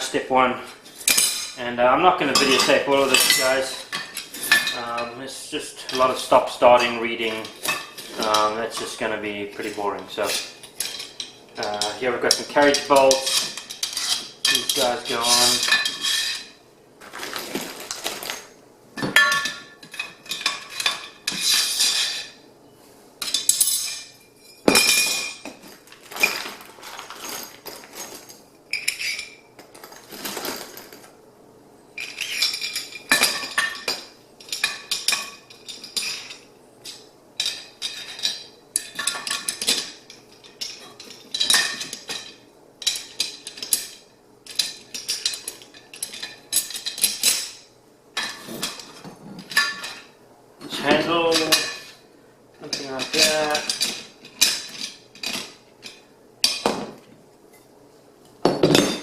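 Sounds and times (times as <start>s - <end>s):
metal hardware clinking and rattling: 2.3s - 5.2s, 9.6s - 16.5s, 23.2s - 31.1s, 32.0s - 50.1s, 50.7s - 52.0s, 52.6s - 57.0s.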